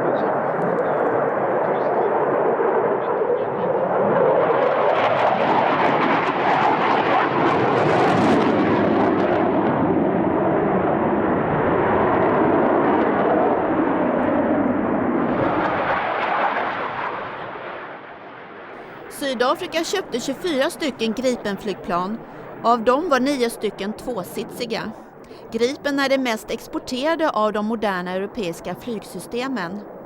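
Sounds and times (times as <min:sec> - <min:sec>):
fighter jet engine roaring: 0:00.0 - 0:22.6.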